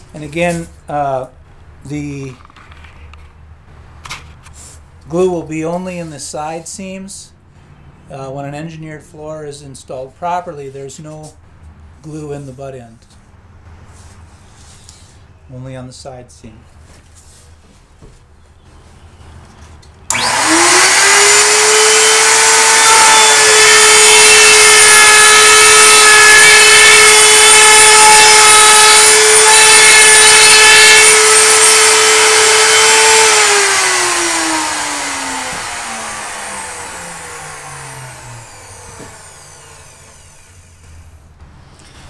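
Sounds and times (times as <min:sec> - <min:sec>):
router high whine: 0:20.1 - 0:40.9.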